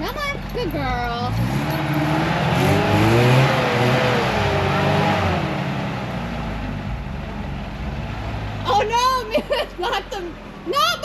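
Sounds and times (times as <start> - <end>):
engine revving hard: 0.0 - 7.0.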